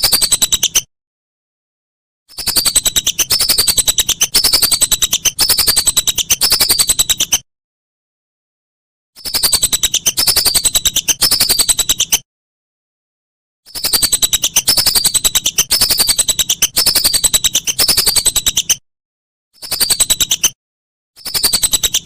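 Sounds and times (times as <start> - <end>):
whistling duck chattering whistles: 0.0 - 0.9, 2.3 - 7.4, 9.2 - 12.2, 13.7 - 18.8, 19.6 - 20.6, 21.2 - 22.0.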